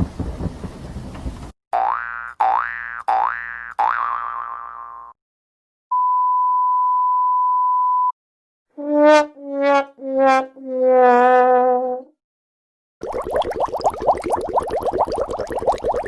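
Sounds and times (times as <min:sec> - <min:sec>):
cartoon boing: 0:01.8 - 0:05.2
censor bleep: 0:05.9 - 0:08.2
sad trombone: 0:08.8 - 0:12.0.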